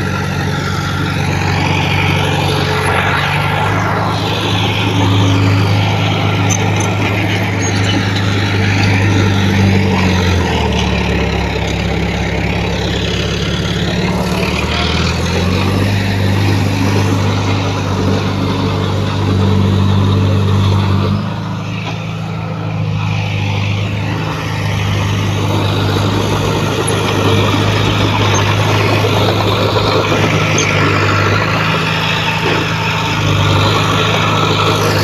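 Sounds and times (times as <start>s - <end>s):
heavy diesel engine under load: 0.0s - 35.0s.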